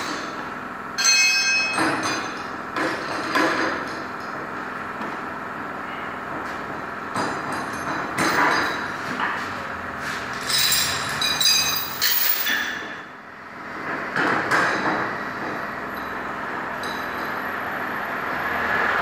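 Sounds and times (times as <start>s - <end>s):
workshop machinery hum: 0.0s - 19.0s
metal ringing: 1.0s - 2.5s, 10.4s - 13.0s
metal knocking and clanking: 1.0s - 5.2s, 6.4s - 9.6s, 13.8s - 15.6s.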